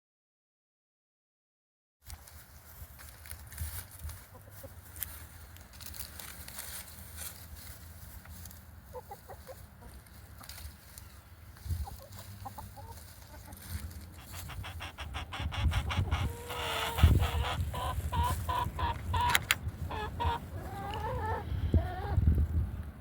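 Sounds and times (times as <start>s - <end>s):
animal clucking calls: 8.9s - 10.0s, 11.8s - 22.2s.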